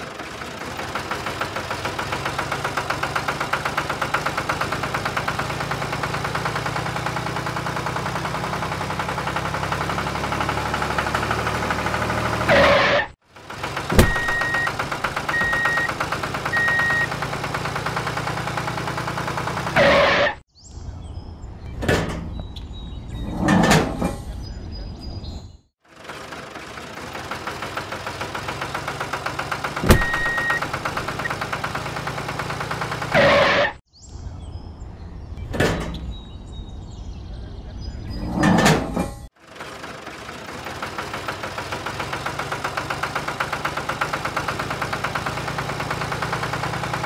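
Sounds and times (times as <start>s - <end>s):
small engine chugging: 0.0s - 12.6s, 13.2s - 20.0s, 25.8s - 33.4s, 39.4s - 47.0s.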